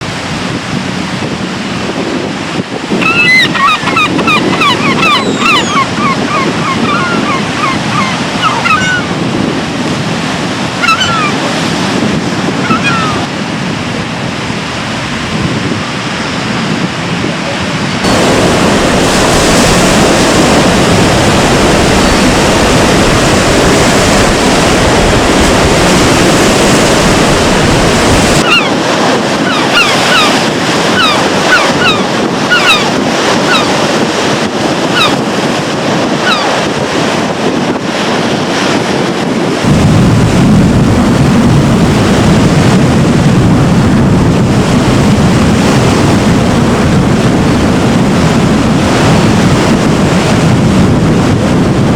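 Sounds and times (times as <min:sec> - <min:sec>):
stormy sea surf: 0:00.0 - 0:51.9
wind buffeting microphone: 0:00.0 - 0:51.9
gulls calling: 0:02.8 - 0:09.4, 0:10.6 - 0:11.8, 0:12.4 - 0:13.4, 0:17.5 - 0:37.4.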